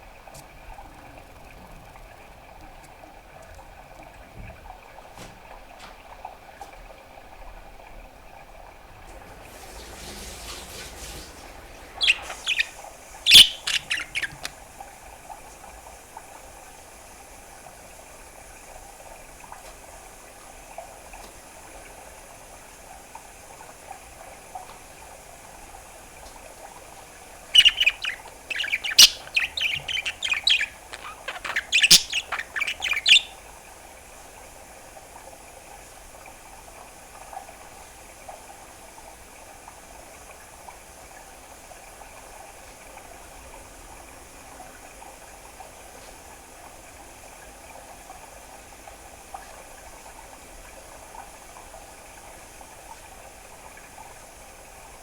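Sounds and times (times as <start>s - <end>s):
budgerigar chirping: 11.9s - 14.6s, 27.5s - 33.4s.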